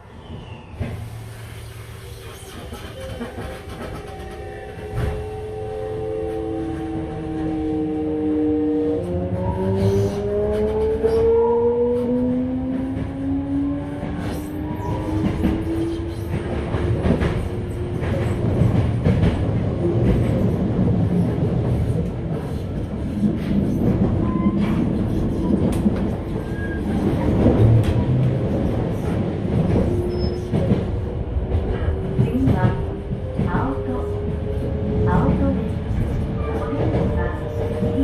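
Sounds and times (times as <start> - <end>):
train wheels rumbling on rail: 0.0 - 38.0
rail joint clicks: 0.2 - 5.4, 13.8 - 38.0.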